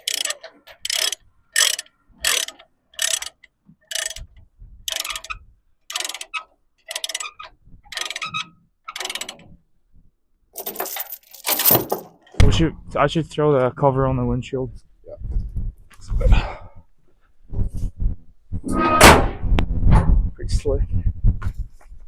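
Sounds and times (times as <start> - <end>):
ratchet pawl clicking: 0.0 - 4.3, 4.9 - 8.3.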